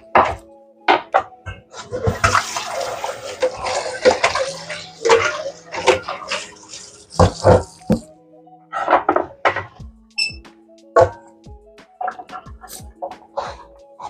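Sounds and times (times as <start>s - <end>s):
water pouring: 1.8s - 8.1s.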